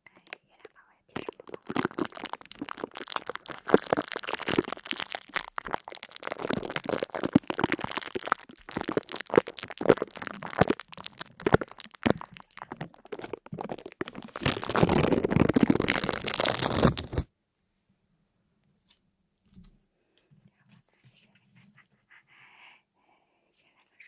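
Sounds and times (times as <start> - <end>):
rapid crunching and crackling: 1.1 - 17.3.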